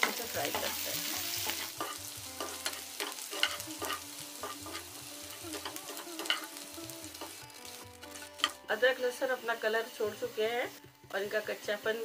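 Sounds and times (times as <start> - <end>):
metal spoon scraping and tapping pan: 0.0 - 8.6
ginger and garlic sizzling in oil: 0.0 - 12.0.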